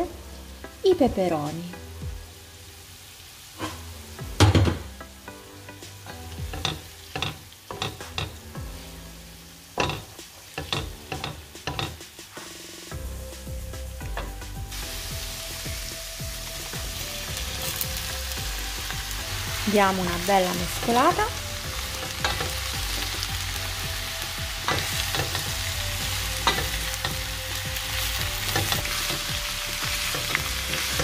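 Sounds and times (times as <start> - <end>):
vegetables frying in a wok: 0.0 - 31.0.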